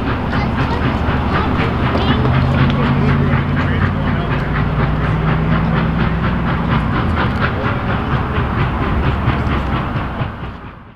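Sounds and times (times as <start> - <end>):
steam train chugging: 0.0 - 10.9.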